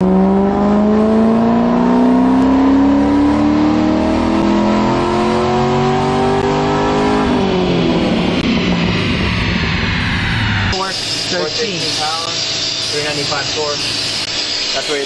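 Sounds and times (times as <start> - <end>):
car engine revving under load: 0.0 - 11.2.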